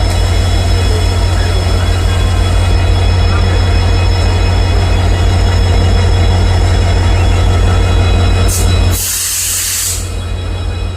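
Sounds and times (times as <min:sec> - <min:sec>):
diesel locomotive engines humming: 0:00.0 - 0:10.9
high-pitched whine tones: 0:00.0 - 0:10.9.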